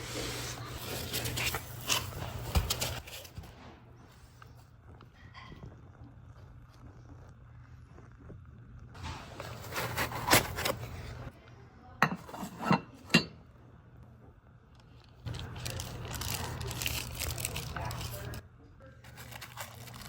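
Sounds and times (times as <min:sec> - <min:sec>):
packaging rustling and scraping: 0:00.0 - 0:03.7, 0:09.0 - 0:11.3, 0:15.0 - 0:18.4, 0:19.1 - 0:20.0.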